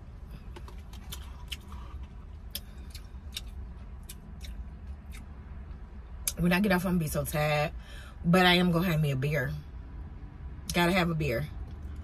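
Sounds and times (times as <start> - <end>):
low hum inside car: 0.0 - 12.0
person chewing noodles: 0.4 - 5.3.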